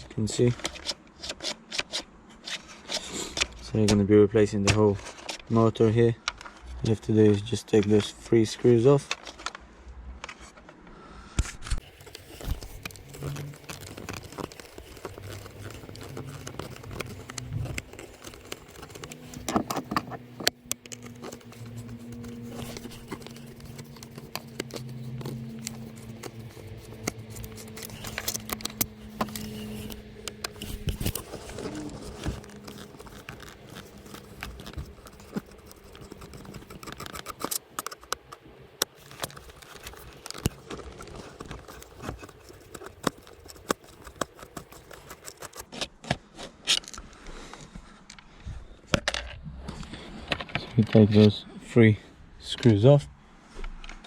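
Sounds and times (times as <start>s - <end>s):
screwdriver clicks and scrapes: 0.5s - 3.6s, 11.6s - 47.1s
faint low hum: 2.2s - 45.5s.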